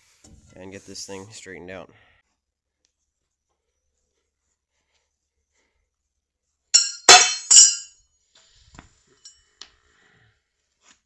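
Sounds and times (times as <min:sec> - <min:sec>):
hammer striking steel: 0:06.8 - 0:07.9.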